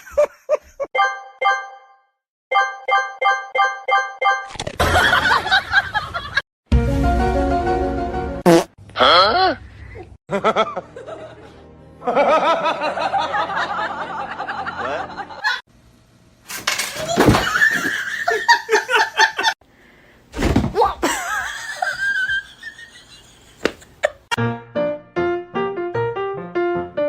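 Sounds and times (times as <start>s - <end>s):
background music: 6.7s - 8.4s, 10.4s - 15.4s
people laughing: 10.3s - 15.6s, 17.4s - 19.6s.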